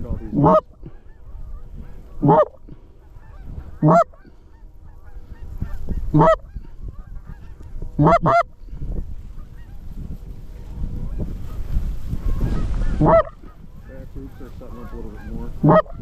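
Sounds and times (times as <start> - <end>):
geese honking: 0.0 - 16.0
goose call honks: 0.1 - 8.6, 12.2 - 16.0.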